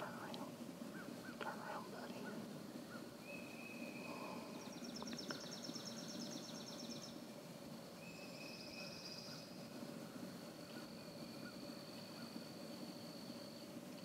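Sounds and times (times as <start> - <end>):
low steady background hush: 0.0 - 14.0
thin bird whistles: 3.2 - 7.0.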